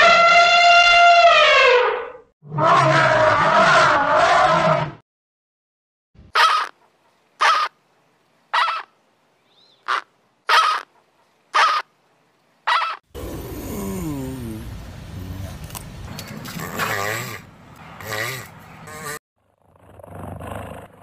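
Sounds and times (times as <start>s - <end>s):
flamingo calls: 7.4s - 7.8s, 8.5s - 8.9s, 9.8s - 10.9s, 11.6s - 11.9s.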